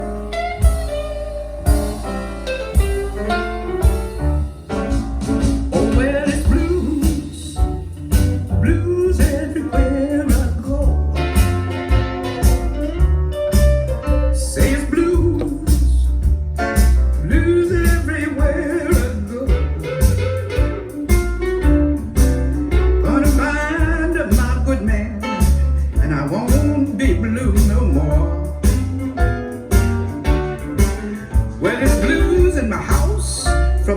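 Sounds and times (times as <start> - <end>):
guitar: 0.0 - 33.9
heavy pulsing bass line: 0.0 - 33.9
person singing: 5.7 - 7.8, 14.4 - 16.1, 17.2 - 20.7, 30.8 - 33.9.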